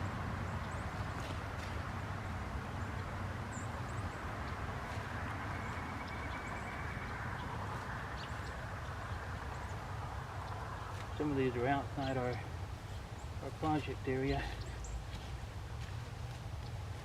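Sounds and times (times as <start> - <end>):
low rumble and hiss: 0.0 - 17.0.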